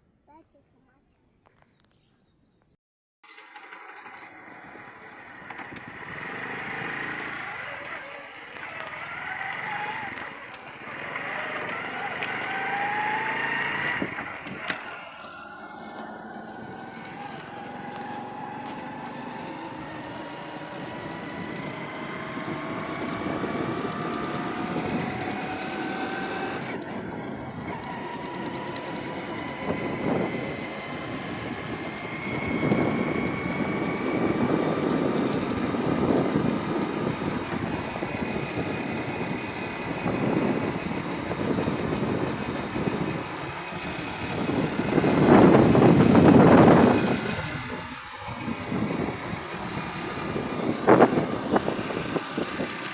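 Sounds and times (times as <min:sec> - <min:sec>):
motorcycle engine running: 0:03.2 - 0:52.9.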